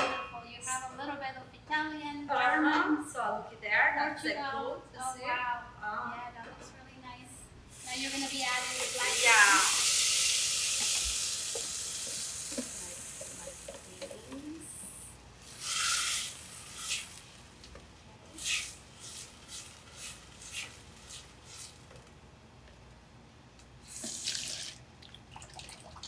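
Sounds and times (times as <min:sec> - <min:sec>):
food sizzling in a hot pan: 0:07.7 - 0:17.8, 0:18.4 - 0:21.9.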